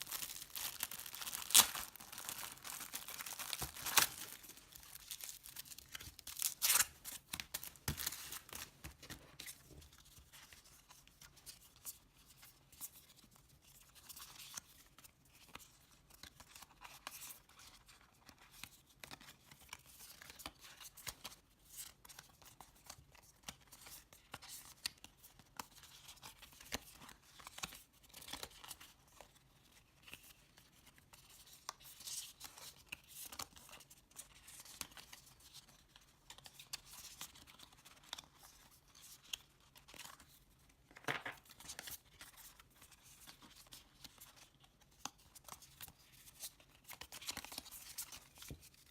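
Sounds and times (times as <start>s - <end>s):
plastic and paper crinkling: 0.0s - 9.8s.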